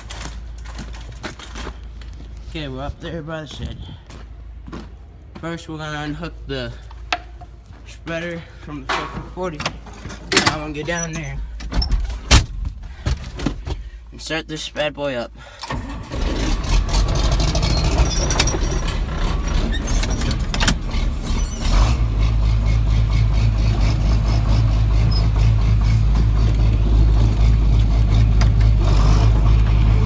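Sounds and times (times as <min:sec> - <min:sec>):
diesel engine cranking: 0:06.8 - 0:14.1, 0:15.4 - 0:30.0
diesel engine idling: 0:15.3 - 0:30.0.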